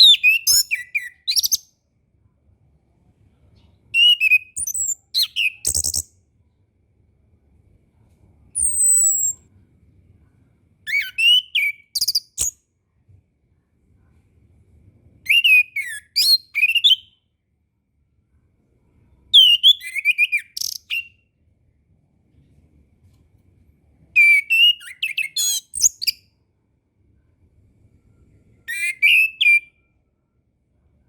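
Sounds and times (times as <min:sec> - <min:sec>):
thrush singing whistled notes: 0:28.7 - 0:29.8.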